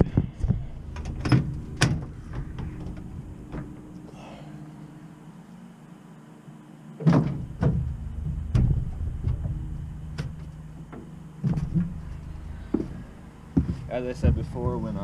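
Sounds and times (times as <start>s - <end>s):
low rumble: 0.0s - 5.5s, 7.3s - 15.0s
sharp knocks and clunks: 7.0s - 12.0s, 13.6s - 15.0s.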